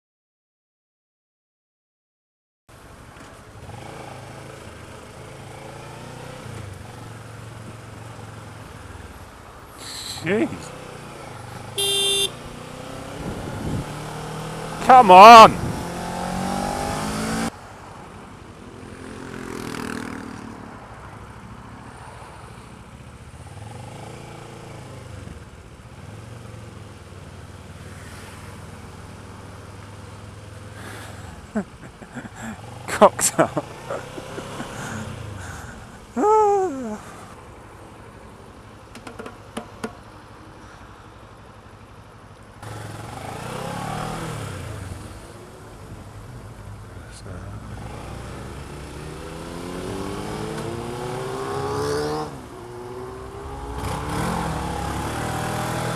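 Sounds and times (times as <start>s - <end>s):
road noise: 2.7s - 55.9s
motorcycle engine revving: 10.2s - 17.5s, 19.0s - 20.4s, 30.2s - 36.0s, 42.6s - 46.7s, 47.5s - 55.9s.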